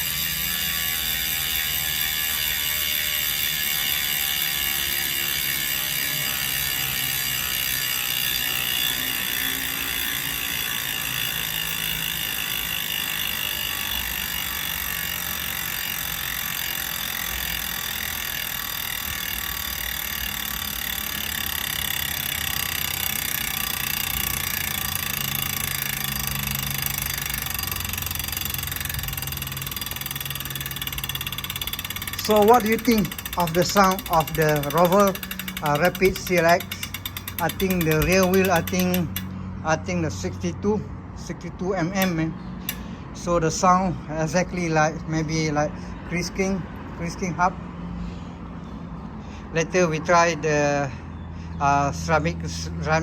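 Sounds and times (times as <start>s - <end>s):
bicycle hub ratchet clicking: 0.0s - 40.5s, 41.2s - 47.3s.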